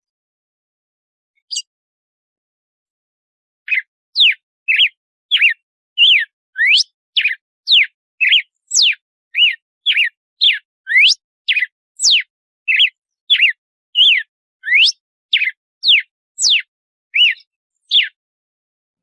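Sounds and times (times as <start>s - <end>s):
bird singing whistled notes: 1.4s - 1.7s, 3.7s - 18.2s.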